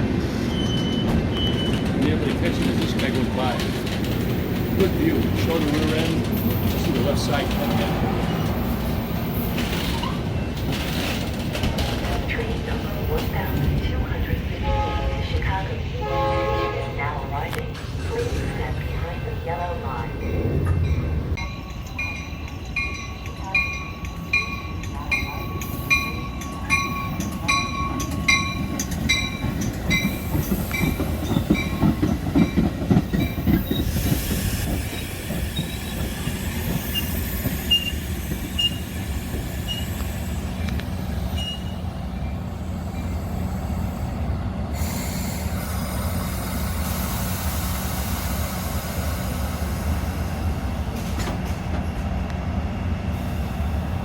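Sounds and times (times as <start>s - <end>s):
standing train humming: 0.0s - 54.0s
train rumbling: 0.0s - 54.0s
wheels or brakes squealing: 0.4s - 1.9s, 28.0s - 41.9s.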